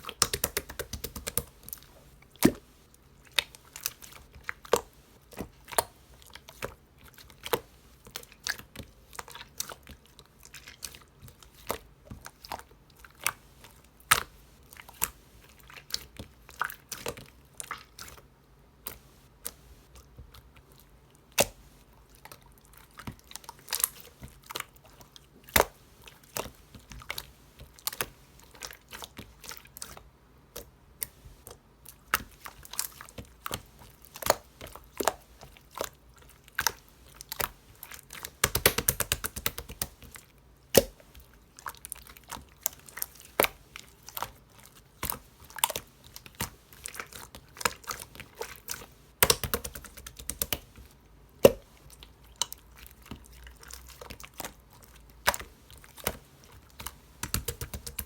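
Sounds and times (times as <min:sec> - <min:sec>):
slime clicking and popping: 0:00.0 - 0:01.5, 0:38.1 - 0:41.0, 0:49.2 - 0:50.7, 0:51.4 - 0:51.7, 0:55.2 - 0:58.0.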